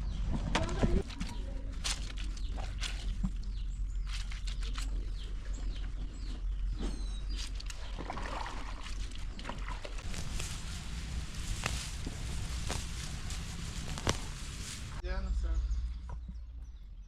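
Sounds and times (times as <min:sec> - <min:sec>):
birds chirping faintly: 0:00.0 - 0:17.0
steady low rumble: 0:10.0 - 0:17.0.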